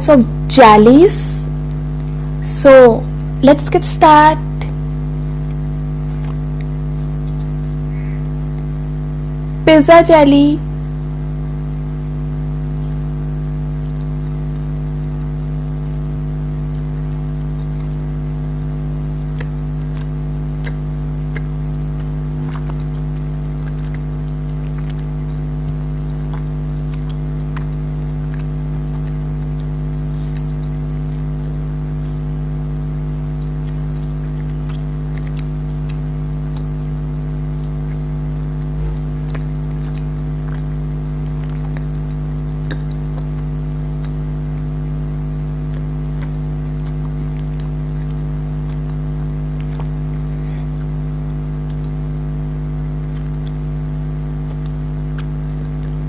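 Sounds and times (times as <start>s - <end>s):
steady hum with fixed tones: 0.0s - 56.0s
person chewing gummy candy: 17.0s - 52.2s, 52.8s - 56.0s.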